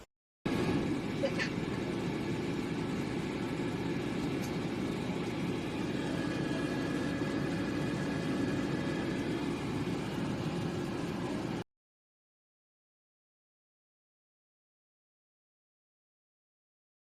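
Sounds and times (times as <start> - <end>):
air fryer fan whirring: 0.5 - 11.7.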